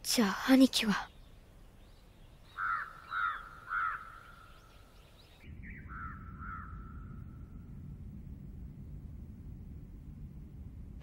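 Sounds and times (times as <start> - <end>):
bird calling: 2.3 - 7.1
low steady rumble: 5.4 - 11.0.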